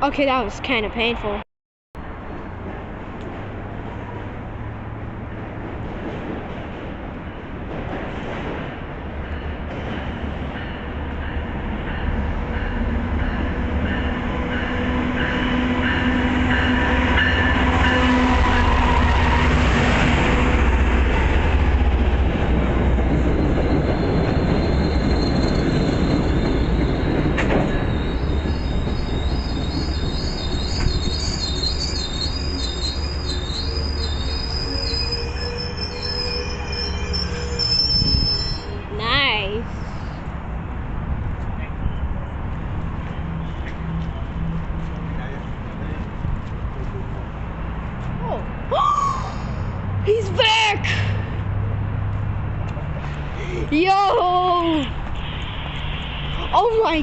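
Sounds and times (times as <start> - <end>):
train rumbling: 2.0 - 57.0
steel wheel squeal: 23.4 - 38.8.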